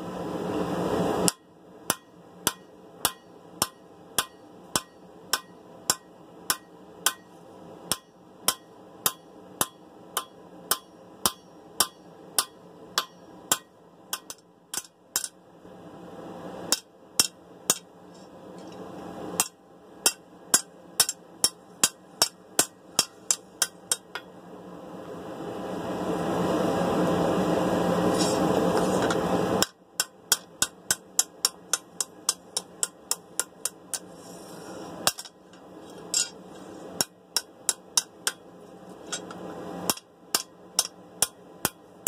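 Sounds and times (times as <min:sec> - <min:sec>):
hammer striking blade on anvil: 0:01.3 - 0:15.4, 0:16.7 - 0:17.9, 0:19.4 - 0:24.3, 0:29.0 - 0:34.1, 0:35.0 - 0:35.4, 0:36.1 - 0:36.4, 0:37.0 - 0:38.4, 0:39.1 - 0:41.8.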